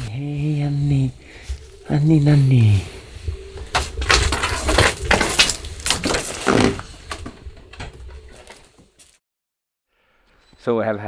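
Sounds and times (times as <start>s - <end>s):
crunching and rustling: 0.6s - 7.4s, 8.1s - 9.2s.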